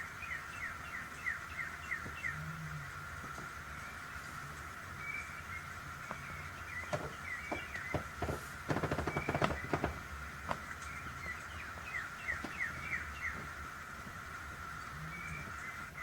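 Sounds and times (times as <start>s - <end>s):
birds chirping: 0.0s - 16.0s
wood fire crackling: 5.7s - 14.6s.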